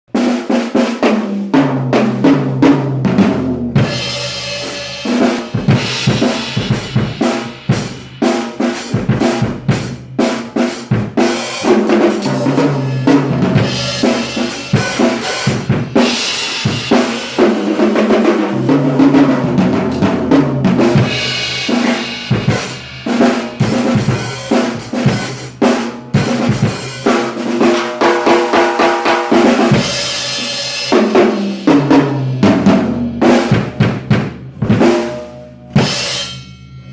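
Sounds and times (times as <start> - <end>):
drum kit playing: 0.1 - 36.9
cymbals ringing: 11.5 - 17.4, 21.1 - 25.5, 35.4 - 36.9.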